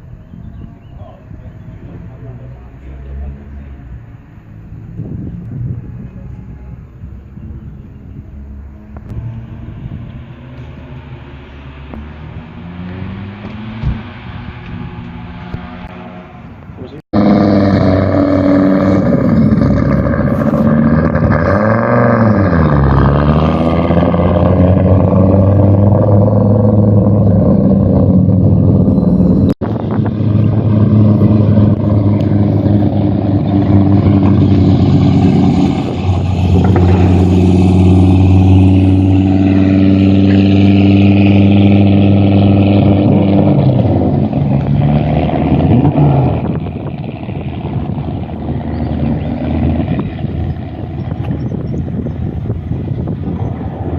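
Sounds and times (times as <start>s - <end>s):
car engine running loud: 0.0s - 53.9s.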